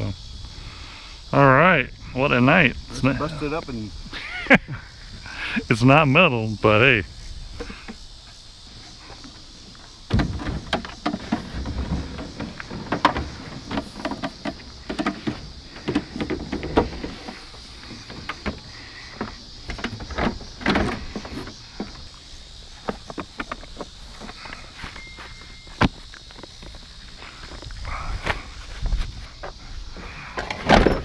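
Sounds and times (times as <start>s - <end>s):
junk knocking and rattling: 9.2s - 24.5s, 30.3s - 31.0s.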